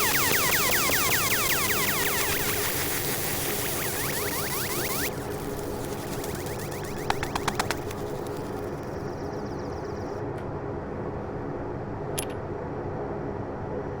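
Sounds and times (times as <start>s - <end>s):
sharp clicks: 0.0s - 9.1s
engraving machine fan and motor hum: 0.0s - 13.9s.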